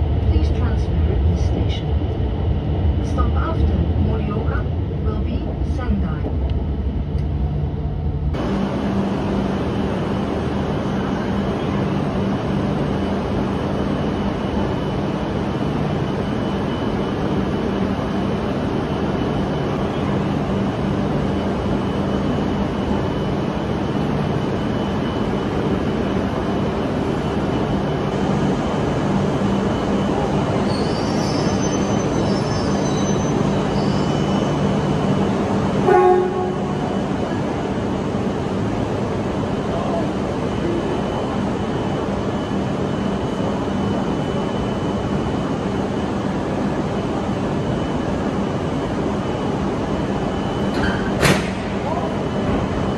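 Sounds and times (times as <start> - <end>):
train rumbling: 0.0 - 52.9
faint high squealing tones: 30.1 - 34.7
brief loud tone: 30.6 - 34.7, 35.8 - 37.0.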